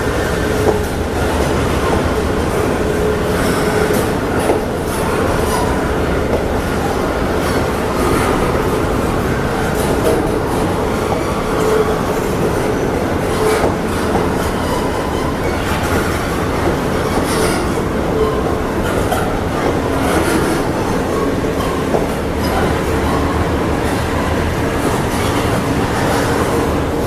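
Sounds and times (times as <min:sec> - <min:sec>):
train wheels clattering over rails: 0:00.0 - 0:27.0.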